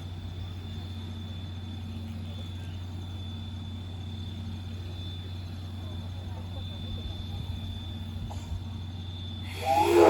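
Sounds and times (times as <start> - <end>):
steam locomotive low hum: 0.0 - 10.0
thin high whine: 7.6 - 10.0.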